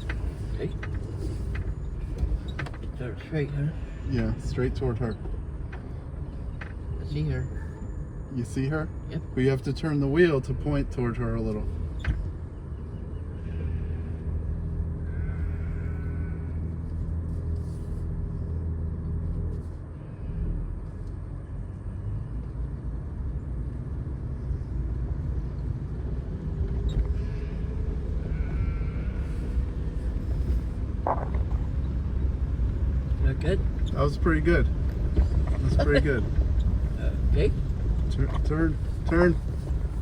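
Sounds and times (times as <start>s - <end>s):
sheep bleating: 15.0s - 16.6s, 27.2s - 29.4s.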